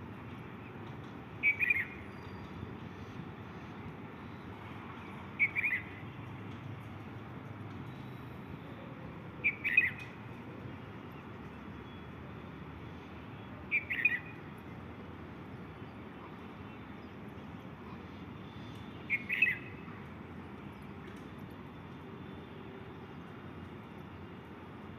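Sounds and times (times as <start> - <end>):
bird chirping calls: 1.4 - 2.5, 5.4 - 6.0, 9.4 - 10.1, 13.7 - 14.4, 18.6 - 20.0.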